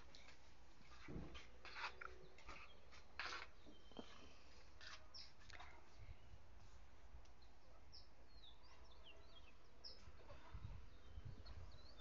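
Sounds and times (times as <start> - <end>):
small birds chirping faintly: 0.0 - 12.0.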